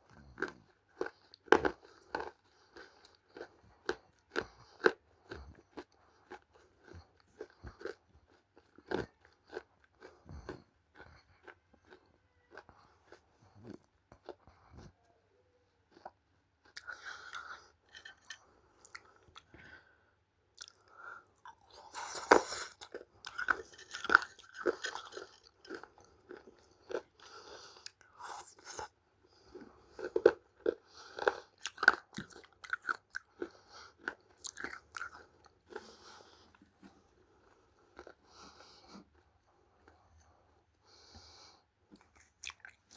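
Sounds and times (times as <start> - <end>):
biting and chewing crunchy clay: 0.0 - 12.7, 20.6 - 40.0.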